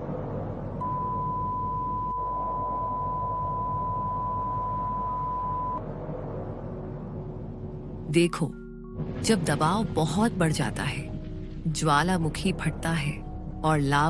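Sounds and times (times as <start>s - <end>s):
steady electronic beep tone: 0.8s - 5.8s.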